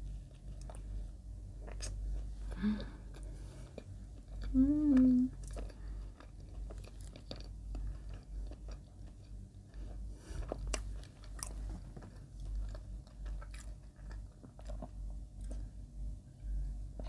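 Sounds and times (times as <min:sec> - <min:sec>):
wet chewing of bread: 0:01.6 - 0:04.5, 0:05.4 - 0:15.7.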